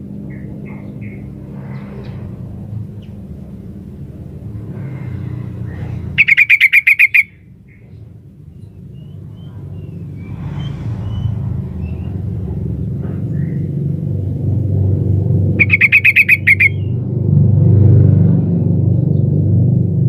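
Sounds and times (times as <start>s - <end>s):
low background rumble: 0.0s - 6.6s, 7.2s - 20.0s
faint bird chirps: 5.7s - 12.1s, 15.6s - 16.9s
bird rapid chattering call: 5.7s - 12.2s, 15.5s - 17.0s.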